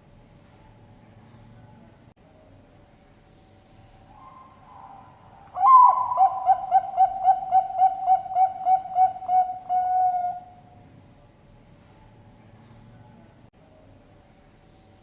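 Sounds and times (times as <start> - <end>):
dove cooing: 4.2 - 10.7.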